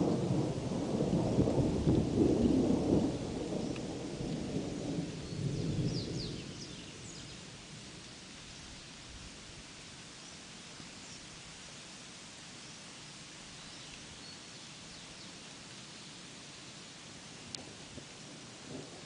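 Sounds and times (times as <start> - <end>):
thunder rumbling: 0.0 - 6.8
rain hissing: 0.0 - 19.0.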